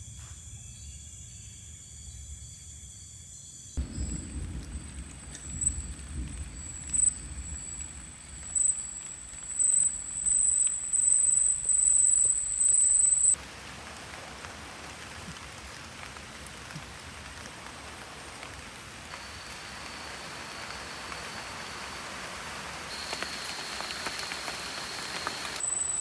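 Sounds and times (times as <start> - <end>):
rain falling in a forest: 3.8 - 26.0.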